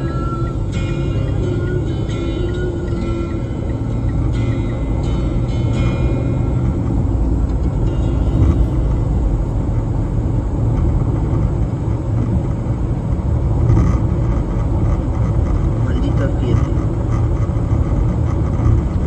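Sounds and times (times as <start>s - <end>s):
car driving on highway: 0.0s - 19.0s.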